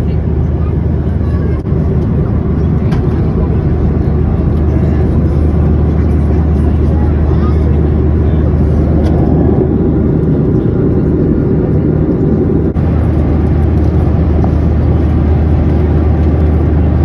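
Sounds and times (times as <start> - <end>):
airplane cabin engine roar: 0.0 - 17.0.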